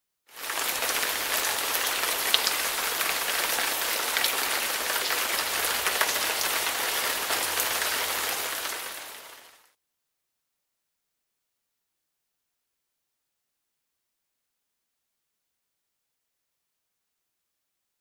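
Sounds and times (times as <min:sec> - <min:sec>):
rain pattering on surface: 0:00.3 - 0:09.8.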